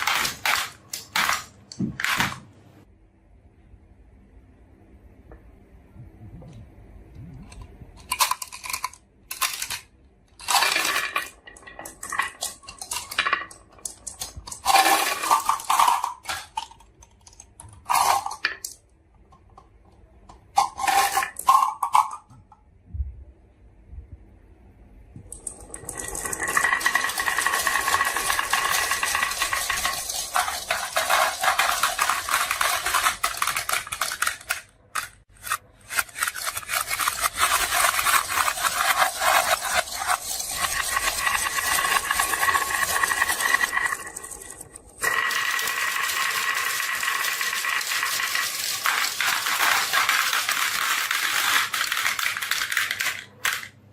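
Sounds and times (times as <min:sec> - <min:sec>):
glass marbles rolling down track: 0:08.0 - 0:18.8, 0:20.5 - 0:22.4, 0:25.3 - 0:53.8.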